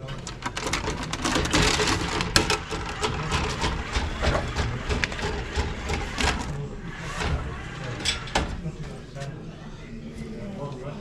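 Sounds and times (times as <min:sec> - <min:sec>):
hard parts knocking and scraping: 0:00.0 - 0:08.6.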